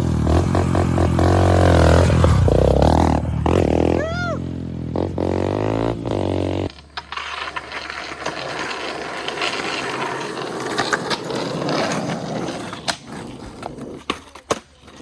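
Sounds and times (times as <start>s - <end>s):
skateboard wheels rattling on pavement: 5.1s - 15.0s
skateboard clacks: 6.7s - 15.0s.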